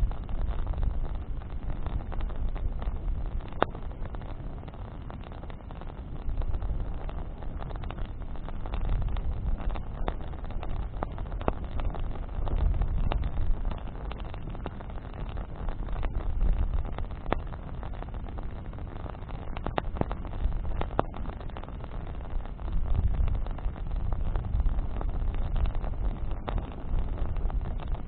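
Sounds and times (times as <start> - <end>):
bonfire crackling and popping: 0.0 - 28.0
low uneven rumble: 0.0 - 28.0.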